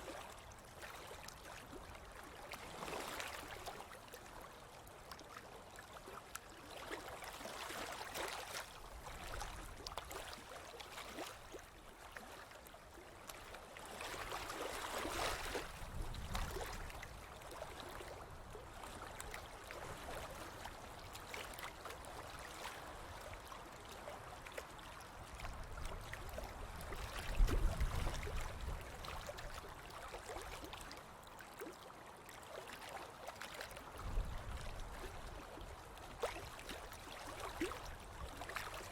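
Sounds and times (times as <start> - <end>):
ocean waves on beach: 13.1 - 18.4.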